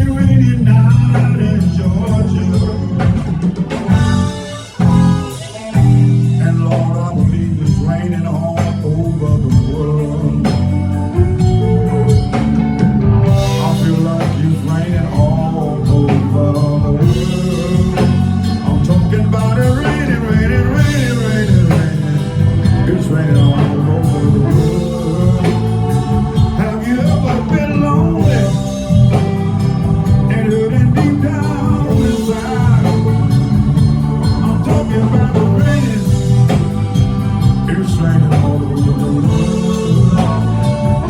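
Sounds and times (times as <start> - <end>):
live blues band playing: 0.0 - 41.0.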